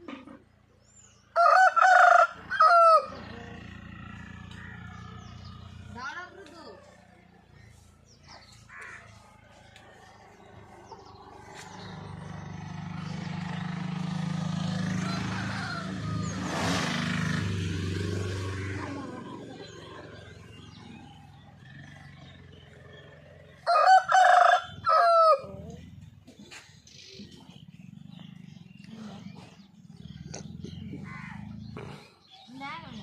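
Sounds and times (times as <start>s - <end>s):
rooster crowing: 1.3s - 3.3s, 14.8s - 16.4s, 23.6s - 25.5s.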